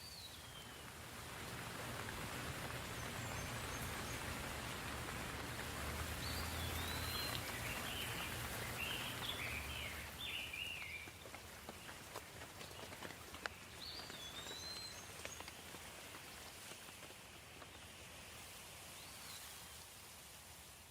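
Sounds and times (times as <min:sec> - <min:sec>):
soft rain falling: 0:00.0 - 0:20.9
scattered drips: 0:00.4 - 0:18.5
songbird calling: 0:06.2 - 0:11.2, 0:13.5 - 0:15.5.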